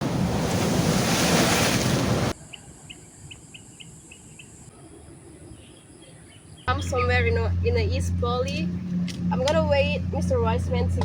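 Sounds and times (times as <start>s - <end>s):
ocean surf: 0.0s - 2.4s
wind buffeting microphone: 0.0s - 2.4s.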